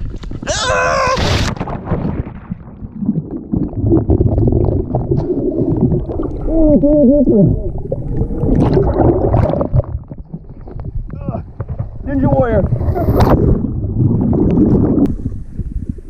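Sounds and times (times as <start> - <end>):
water sloshing and splashing: 7.8 - 15.4.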